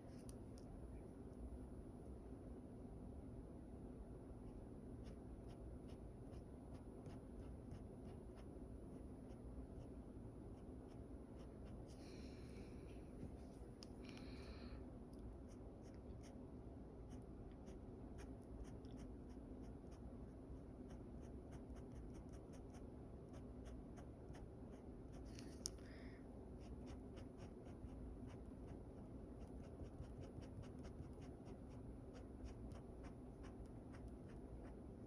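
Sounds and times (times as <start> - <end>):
pencil scratching on paper: 20.9 - 25.3, 26.6 - 35.0.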